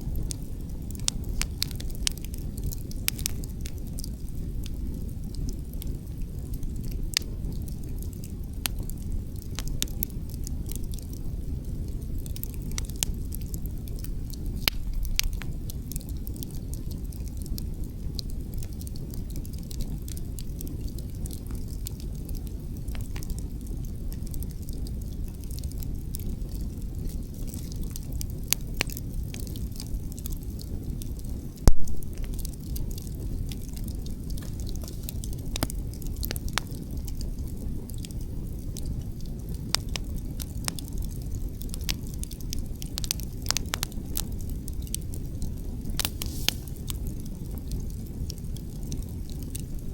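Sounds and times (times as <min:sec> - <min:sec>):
campfire crackling: 0:00.0 - 0:49.9
low rumble of wind: 0:00.0 - 0:49.9.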